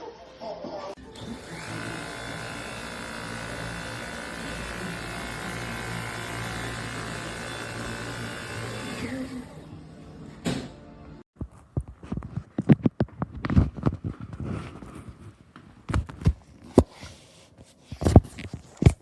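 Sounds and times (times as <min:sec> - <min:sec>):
vacuum cleaner motor whine: 0:01.0 - 0:09.7.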